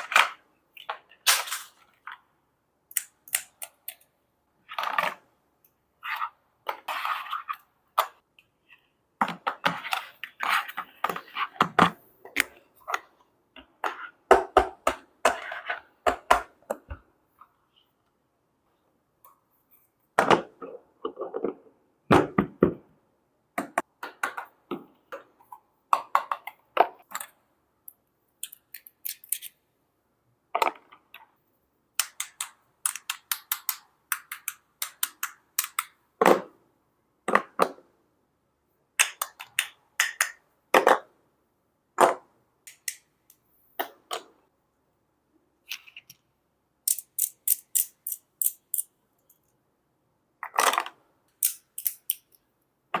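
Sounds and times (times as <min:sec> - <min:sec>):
plastic toy pieces clicking: 0:46.8 - 0:49.4, 0:51.4 - 0:52.4.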